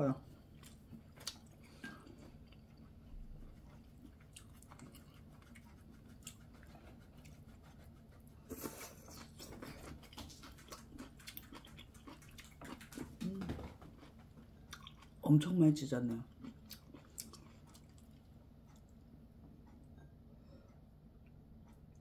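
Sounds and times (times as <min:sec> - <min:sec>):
person chewing: 0:00.5 - 0:15.2, 0:16.2 - 0:19.0.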